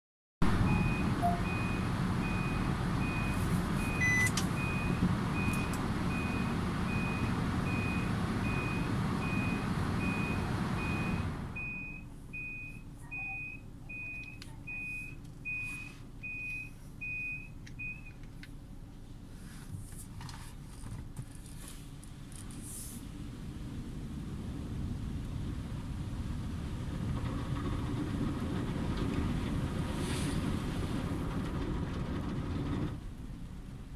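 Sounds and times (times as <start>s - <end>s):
car wash machine rushing: 0.4s - 11.7s, 23.0s - 33.9s.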